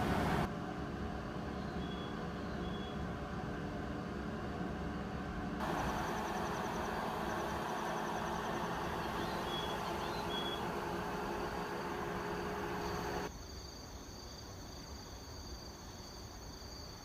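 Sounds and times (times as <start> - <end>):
idling train hum: 0.0 - 13.3
crickets chirping: 5.6 - 17.0.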